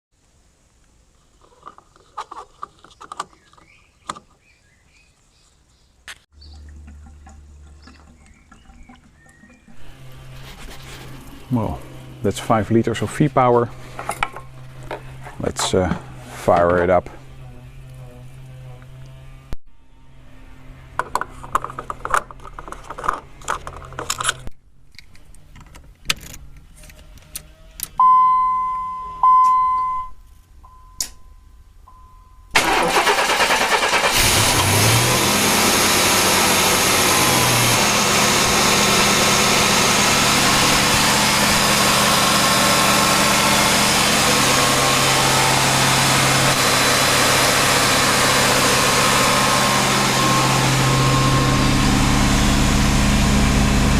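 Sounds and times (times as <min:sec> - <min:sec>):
truck engine cranking and idling: 0:06.3 - 0:28.0, 0:31.0 - 0:53.9
warning chime tones: 0:28.0 - 0:32.6.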